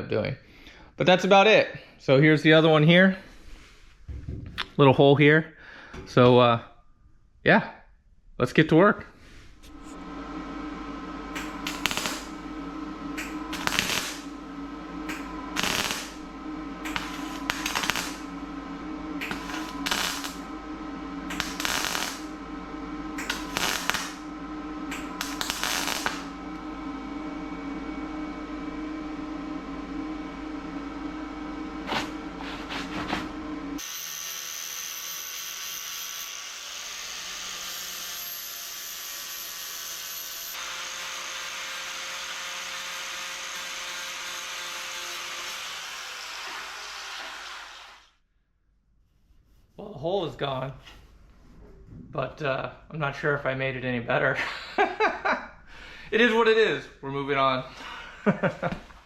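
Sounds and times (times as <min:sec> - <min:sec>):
steady hum: 0:09.1 - 0:33.8
hissing whir with high whine: 0:09.5 - 0:45.6
crackling welding bursts: 0:10.8 - 0:20.6, 0:21.2 - 0:22.4, 0:23.1 - 0:26.6.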